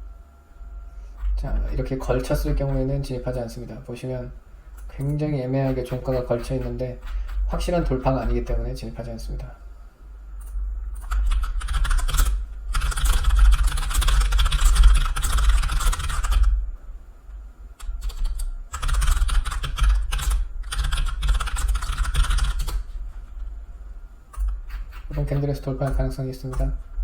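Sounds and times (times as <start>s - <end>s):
rapid typing on a keyboard: 4.8s - 8.6s, 11.0s - 16.6s, 17.8s - 22.9s.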